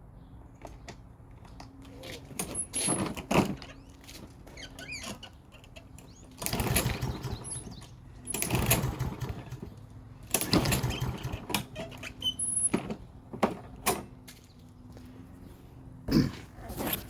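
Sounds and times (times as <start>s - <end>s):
mower engine cranking: 1.4s - 14.2s
recoil starter pulled: 2.2s - 13.0s.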